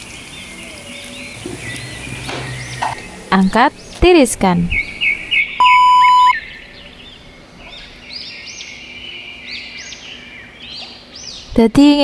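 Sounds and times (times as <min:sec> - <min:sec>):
small birds chirping: 0:00.0 - 0:12.0
loud electronic beep: 0:05.6 - 0:06.4.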